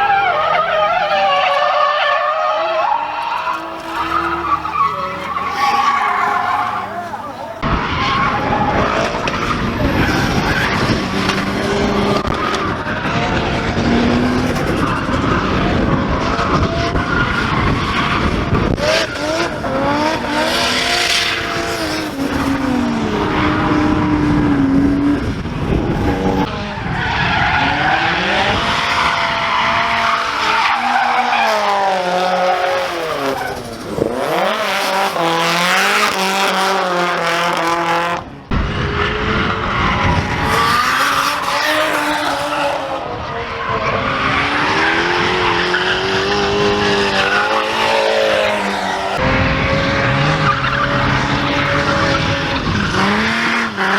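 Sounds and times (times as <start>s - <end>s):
tyres squealing: 0.0s - 7.6s
car engines revving: 0.0s - 53.9s.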